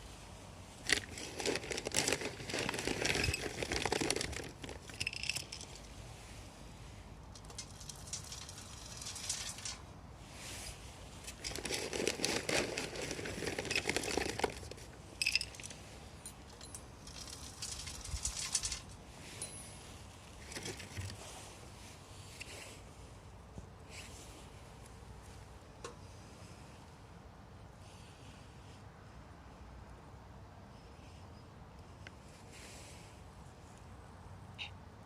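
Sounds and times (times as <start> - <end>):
rustling and rattling: 0.7 - 6.0, 7.3 - 21.5
wood fire crackling: 7.3 - 10.0.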